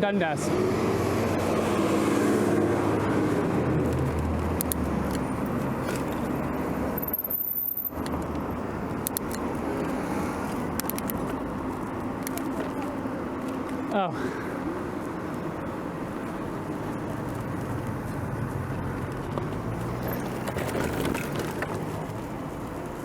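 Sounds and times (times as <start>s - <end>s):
rush of road traffic: 0.0s - 23.0s
vehicle engine hum: 0.0s - 23.0s
sharp ticks: 3.8s - 5.7s, 7.9s - 12.6s.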